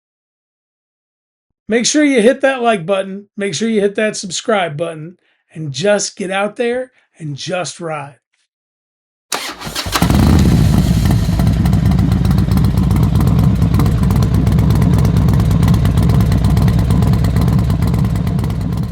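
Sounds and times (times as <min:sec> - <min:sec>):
motorcycle engine starting and running: 0:09.3 - 0:18.9.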